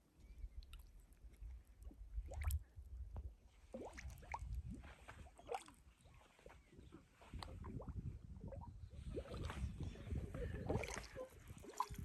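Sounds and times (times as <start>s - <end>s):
mud bubbles bursting with wet plops: 2.2s - 2.6s, 3.8s - 4.8s, 7.3s - 9.6s, 10.6s - 12.0s.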